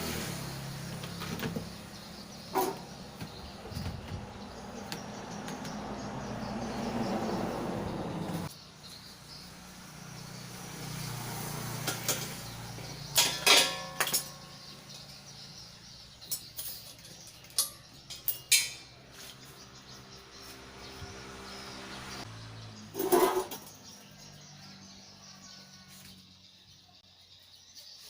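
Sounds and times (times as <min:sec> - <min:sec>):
sharp clinks and knocks: 0:13.1 - 0:15.1, 0:16.2 - 0:19.0.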